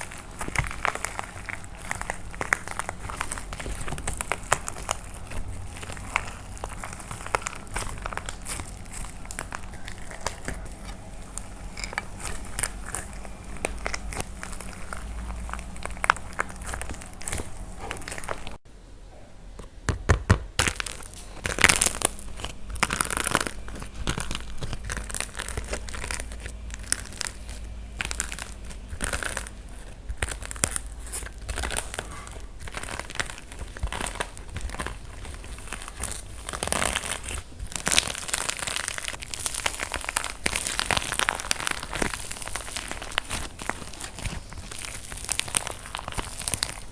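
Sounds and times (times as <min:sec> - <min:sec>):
dry clay crackling and crumbling: 0:00.0 - 0:18.6, 0:19.6 - 0:46.9.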